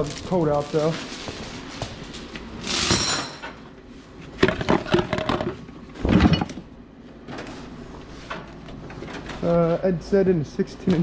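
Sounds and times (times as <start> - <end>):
chain clanking and rattling: 0.0 - 3.6
metallic ring: 2.6 - 3.6.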